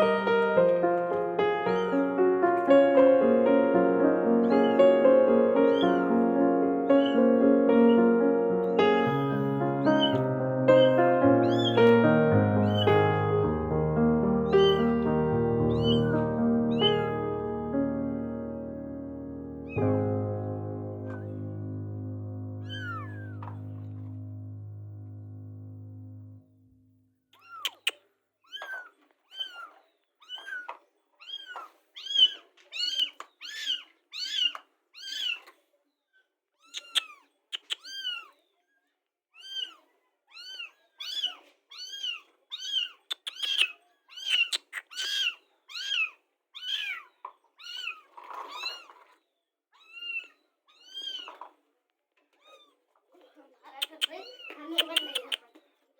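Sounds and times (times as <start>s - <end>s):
kitten mewing: 1.6s - 2.1s, 4.4s - 13.2s, 14.5s - 15.1s, 15.7s - 17.2s, 22.6s - 23.6s, 36.6s - 38.3s.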